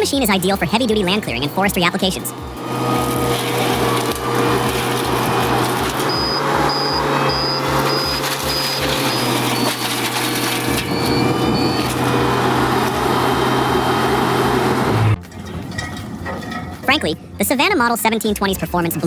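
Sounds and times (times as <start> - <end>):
high beeping: 0.0 - 14.3
mulcher grinding wood: 0.0 - 16.7
skid steer engine under load: 0.0 - 16.9.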